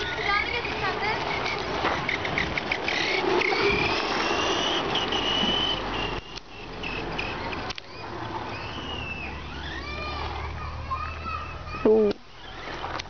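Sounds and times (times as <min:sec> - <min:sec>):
rc car motor whining: 0:00.0 - 0:13.0.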